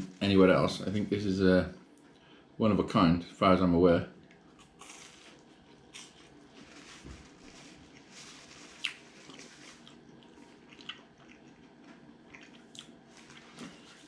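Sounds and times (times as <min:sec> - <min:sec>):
person chewing: 0:04.2 - 0:06.8, 0:07.7 - 0:14.0.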